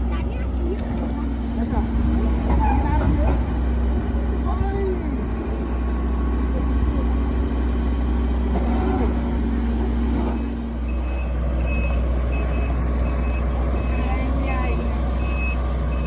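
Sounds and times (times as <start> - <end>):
excavator diesel engine rumbling: 0.0 - 16.0
warning alarm beeps: 10.9 - 14.2, 15.2 - 16.0.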